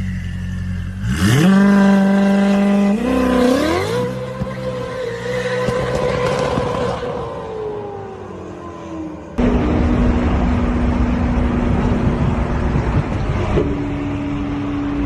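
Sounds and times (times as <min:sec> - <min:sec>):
car engine revving: 0:01.0 - 0:15.0.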